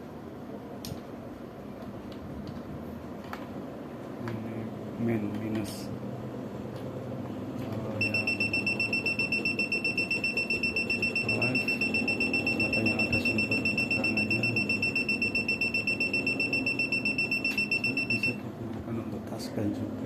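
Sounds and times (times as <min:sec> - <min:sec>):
multimeter continuous beep: 0:08.0 - 0:18.4.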